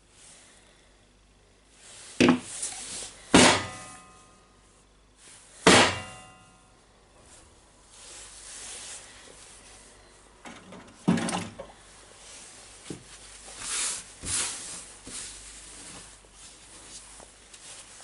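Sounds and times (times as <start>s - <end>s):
sharp metal knocks: 3.4s - 4.2s, 5.7s - 6.4s
metallic ring: 3.6s - 4.6s, 6.0s - 6.8s.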